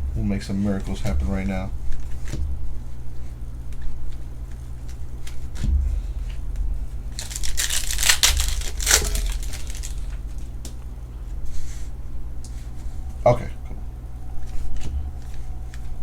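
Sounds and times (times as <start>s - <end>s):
foil wrappers tearing and crinkling: 7.2s - 10.3s.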